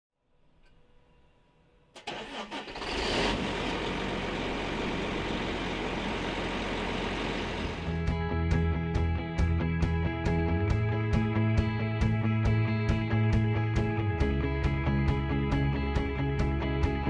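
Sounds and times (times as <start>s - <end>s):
tractor diesel engine starting: 2.0s - 8.1s.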